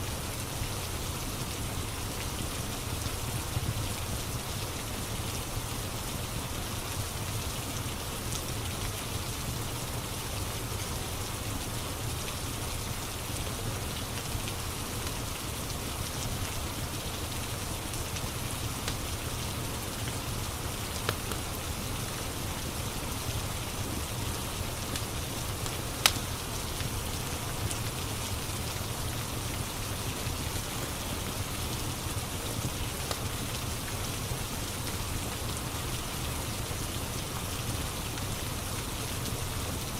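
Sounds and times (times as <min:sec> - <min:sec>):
steady rain on a surface: 0:00.0 - 0:39.9
fireplace crackling and popping: 0:12.3 - 0:36.2.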